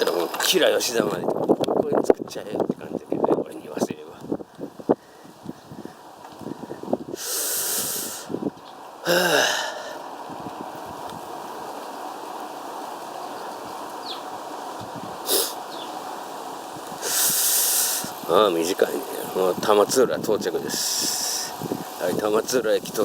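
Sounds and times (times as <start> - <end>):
wind rushing: 0.0 - 8.6, 9.6 - 11.8, 13.5 - 23.0
bicycle riding noise: 0.0 - 23.0
loud breathy hisses: 4.9 - 8.4, 9.0 - 10.1, 15.2 - 15.8, 17.0 - 18.2, 20.6 - 21.8.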